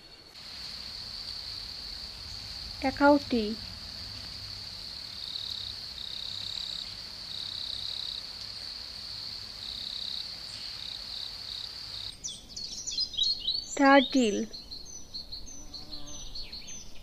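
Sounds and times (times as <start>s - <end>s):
insects trilling: 0.3s - 12.2s
lower insect trill: 0.3s - 12.2s, 13.3s - 16.8s.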